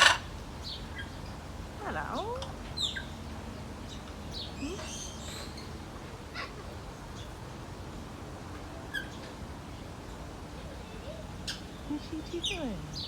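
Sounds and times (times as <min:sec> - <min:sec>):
parrots chirping and squawking: 0:00.0 - 0:00.3.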